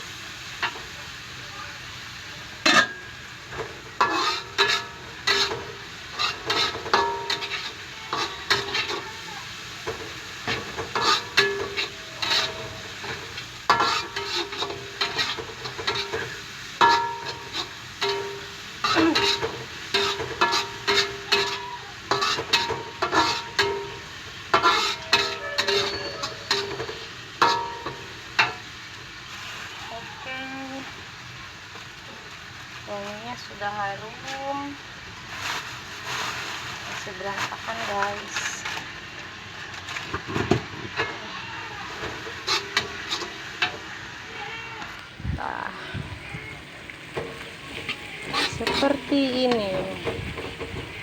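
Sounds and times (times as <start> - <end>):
oil sizzling: 0.0 - 51.0
metal spatula scraping a pan: 2.6 - 9.2, 9.8 - 28.6, 41.9 - 43.9, 47.1 - 51.0.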